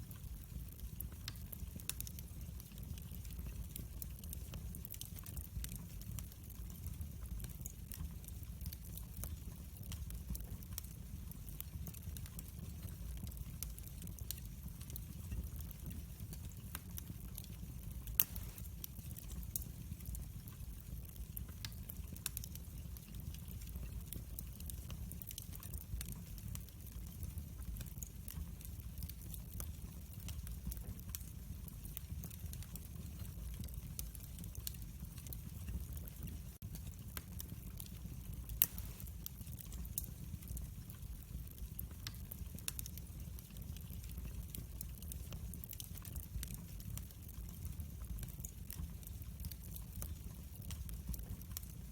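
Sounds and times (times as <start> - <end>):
wood fire crackling: 0.0 - 51.9
fire popping: 0.1 - 51.8.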